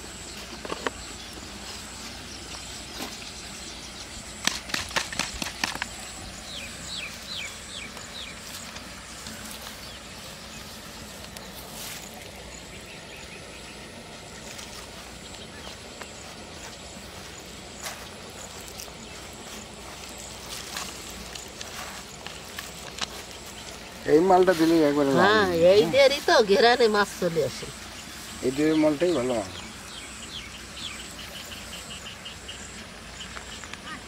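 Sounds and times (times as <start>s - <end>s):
bird chirping: 0.0s - 13.9s, 14.6s - 34.0s
outdoor hiss: 0.0s - 34.0s
sharp clicks and crackles: 4.4s - 6.0s.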